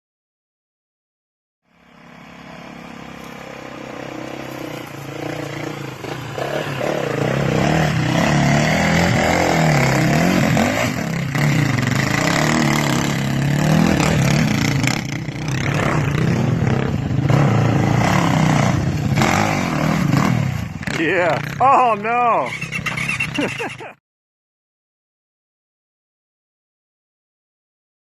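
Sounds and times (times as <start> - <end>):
dirt bike engine revving: 1.7 - 23.9.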